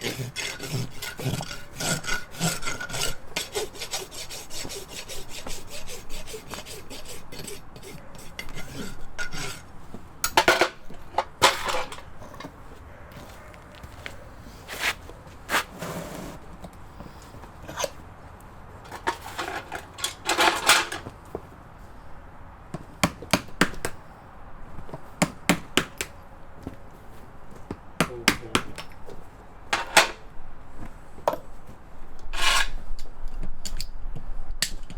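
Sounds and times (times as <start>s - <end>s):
rasp strokes on hoof: 0.0s - 10.0s, 14.6s - 16.4s, 32.3s - 33.0s
metal tools clinking: 10.3s - 12.5s, 18.9s - 21.0s.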